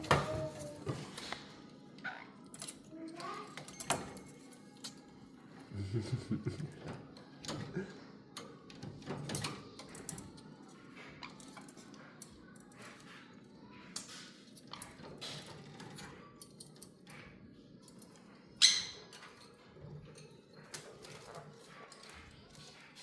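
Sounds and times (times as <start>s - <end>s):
parrots clicking and chirping: 20.7s - 22.8s.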